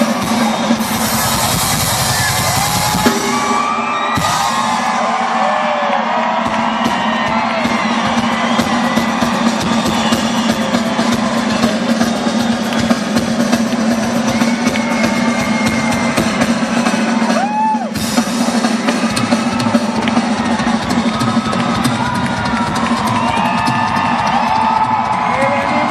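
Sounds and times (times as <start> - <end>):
rock drum kit played fast: 0.0 - 25.9.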